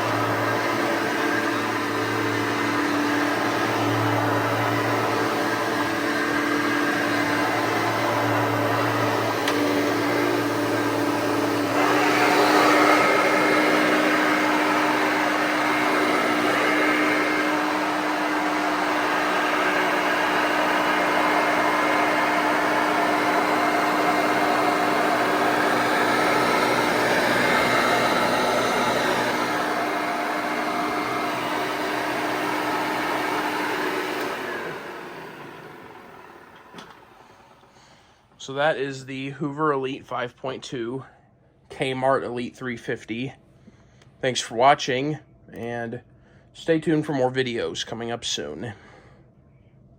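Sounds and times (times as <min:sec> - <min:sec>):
vacuum cleaner motor humming: 0:00.0 - 0:38.0.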